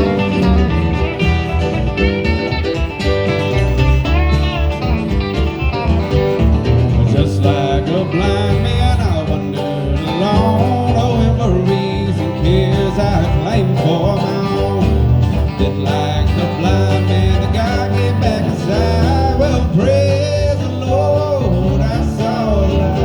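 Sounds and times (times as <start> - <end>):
acoustic guitar melody: 0.0 - 23.0
steady bass: 0.0 - 23.0.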